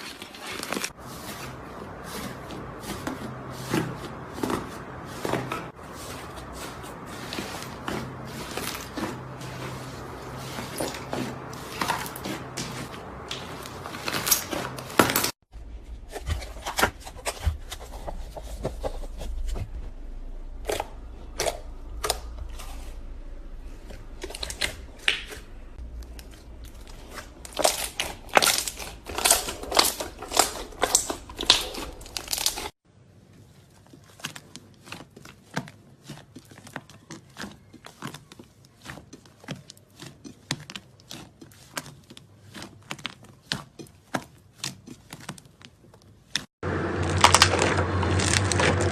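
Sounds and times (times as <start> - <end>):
slime crackling and popping: 26.0 - 32.7, 47.0 - 48.9.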